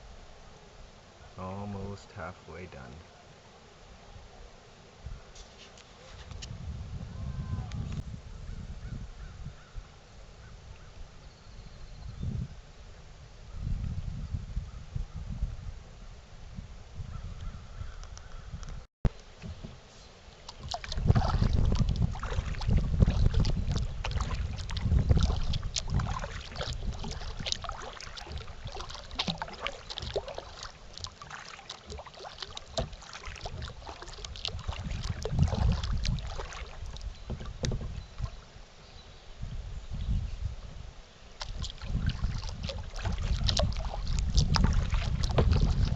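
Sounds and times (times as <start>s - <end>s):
wind buffeting microphone: 6.2s - 19.8s, 20.5s - 45.9s
paddle splashing in water: 19.1s - 38.7s, 41.3s - 45.9s
water dripping: 20.3s - 38.4s, 41.4s - 45.9s.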